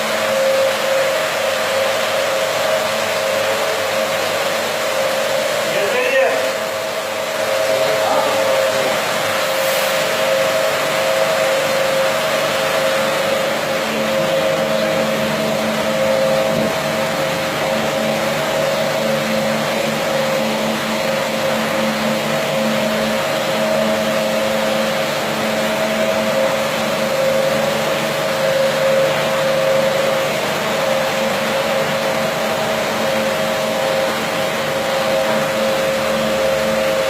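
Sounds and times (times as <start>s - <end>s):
carpet washing machine humming: 0.0s - 37.0s.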